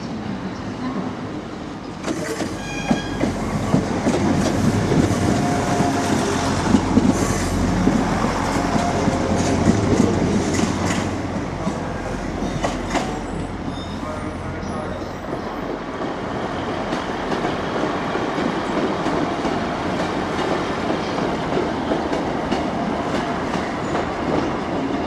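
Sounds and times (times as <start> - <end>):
train engine and wheel rumble: 0.0 - 25.0
high wheel squeal: 13.2 - 15.2.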